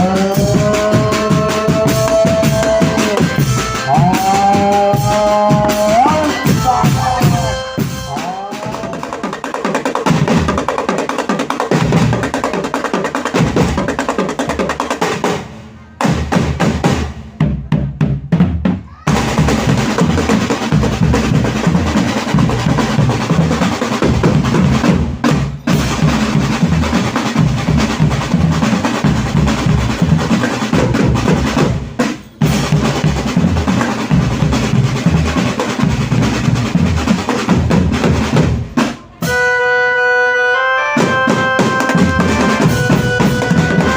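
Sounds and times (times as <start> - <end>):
driving drum music: 0.0 - 39.6, 41.0 - 43.9.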